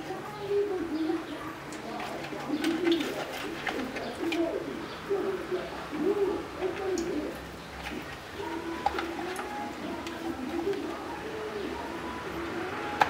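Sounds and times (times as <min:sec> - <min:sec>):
bird cooing: 0:00.0 - 0:13.0
hands handling floured fish: 0:01.7 - 0:04.8, 0:06.0 - 0:13.0.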